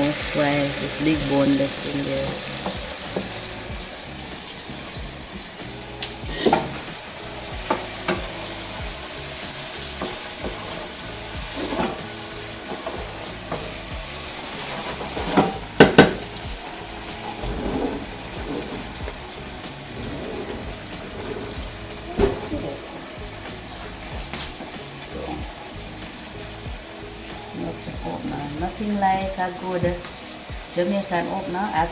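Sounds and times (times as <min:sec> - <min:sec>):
food sizzling in a pot: 0:00.0 - 0:31.9
utensil knocking against pot: 0:15.2 - 0:16.3.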